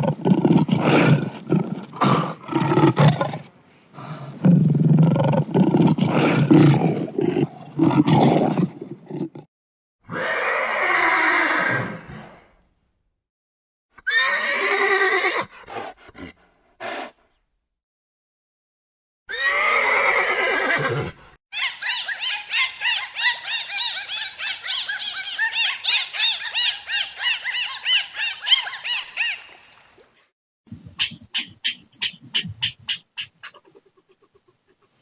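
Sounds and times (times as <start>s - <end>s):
horse whinnying: 10.1s - 12.0s, 14.0s - 15.5s, 19.3s - 21.2s
rapid high chirping calls: 30.8s - 33.8s.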